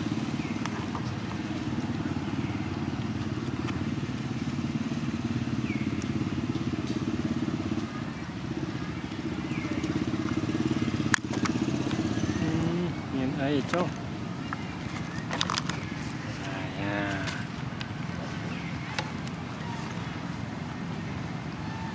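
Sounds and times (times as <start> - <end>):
small engine running: 0.0 - 13.5.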